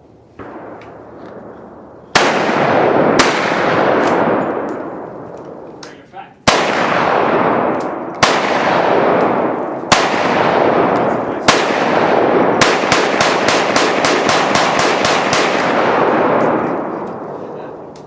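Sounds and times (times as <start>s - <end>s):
gunshots with rolling echo: 0.3s - 5.8s, 6.4s - 18.0s
rapid gunfire: 6.5s - 16.7s.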